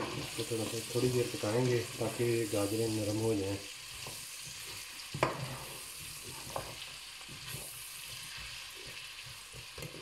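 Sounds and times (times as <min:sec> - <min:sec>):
chicken and carrots sizzling in pot: 0:00.0 - 0:10.0.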